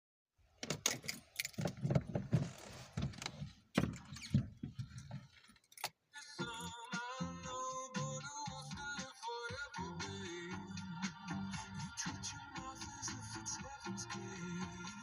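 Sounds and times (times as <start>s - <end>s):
car keys jangling: 0.6s - 2.2s, 4.8s - 6.0s
music: 6.1s - 15.0s.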